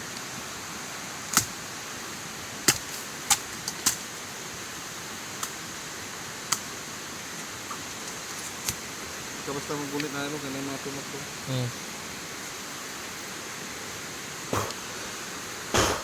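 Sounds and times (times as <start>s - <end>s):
rain hissing: 0.0s - 16.0s
blade chopping bamboo: 2.6s - 4.0s.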